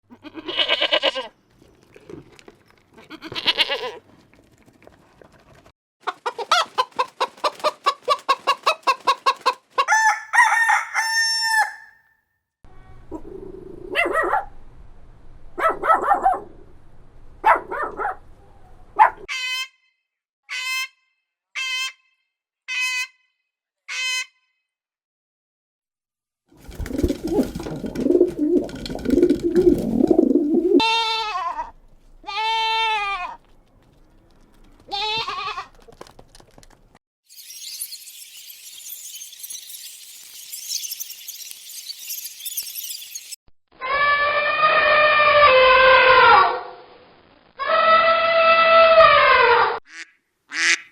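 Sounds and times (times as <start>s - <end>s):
hens clucking: 6.0s - 10.2s
rooster crowing: 9.8s - 12.0s
short high peeps: 37.3s - 43.4s.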